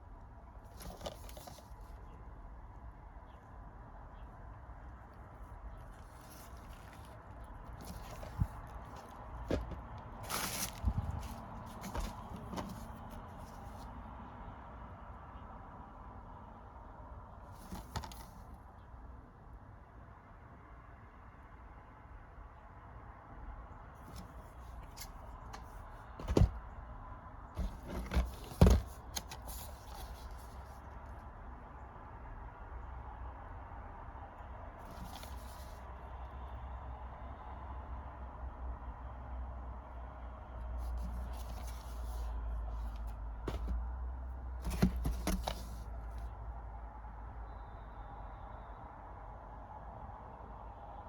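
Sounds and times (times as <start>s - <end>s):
packaging rustling: 0.7s - 2.0s, 5.8s - 13.8s, 24.1s - 26.6s, 27.6s - 30.6s, 40.9s - 43.8s, 44.6s - 45.8s
plastic cases knocking: 7.6s - 13.2s, 24.1s - 26.7s, 27.6s - 30.2s, 43.5s - 43.8s, 44.6s - 45.8s.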